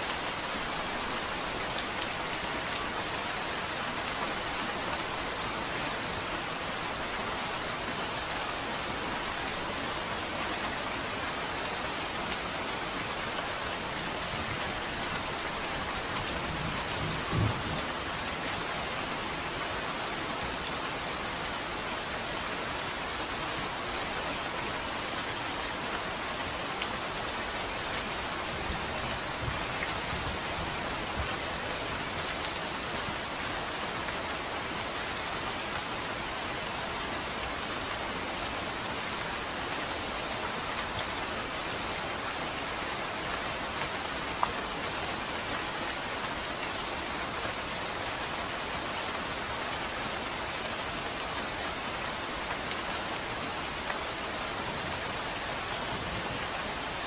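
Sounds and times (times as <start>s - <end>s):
rain falling: 0.0s - 57.0s.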